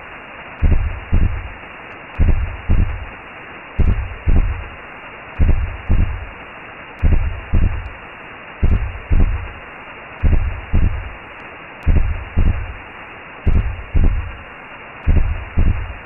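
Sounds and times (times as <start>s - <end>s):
whooshing hiss: 0.0s - 16.0s
heartbeat thumps: 0.6s - 1.6s, 2.2s - 3.1s, 3.8s - 4.8s, 5.4s - 6.3s, 7.0s - 8.0s, 8.6s - 9.6s, 10.2s - 11.2s, 11.8s - 12.8s, 13.5s - 14.4s, 15.0s - 16.0s.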